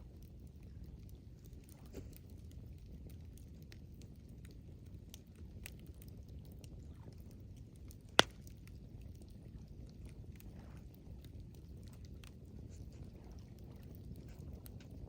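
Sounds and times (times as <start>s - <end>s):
campfire crackling: 0.0s - 15.0s
burning wood popping: 7.8s - 9.2s.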